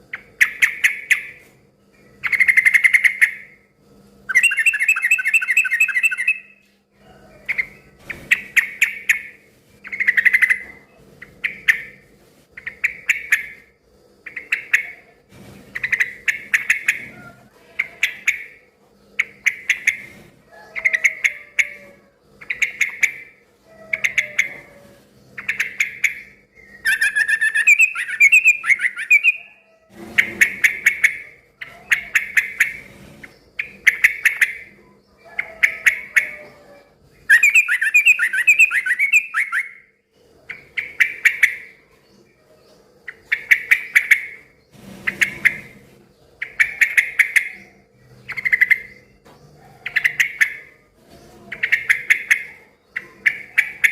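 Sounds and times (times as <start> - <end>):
bulbul singing: 4.3 - 6.6, 25.4 - 29.6, 37.2 - 39.9.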